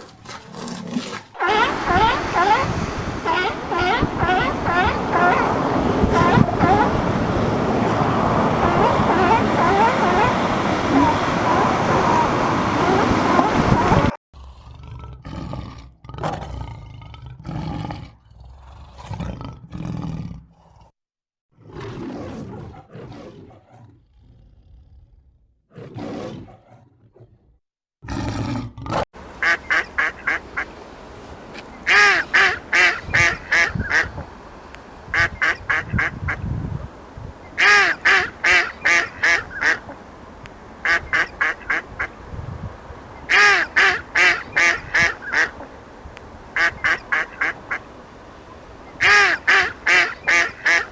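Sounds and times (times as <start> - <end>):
ducks quacking: 1.4 - 14.1, 29.2 - 50.9.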